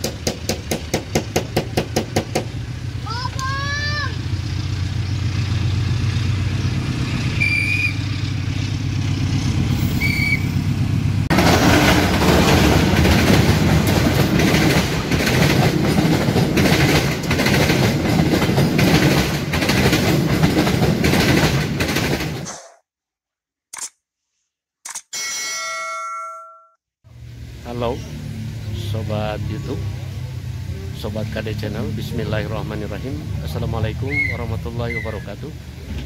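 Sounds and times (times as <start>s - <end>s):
locomotive engine hum: 0.0s - 21.8s, 27.1s - 36.0s
train wheels rumbling and clicking: 0.0s - 22.5s, 32.4s - 36.0s.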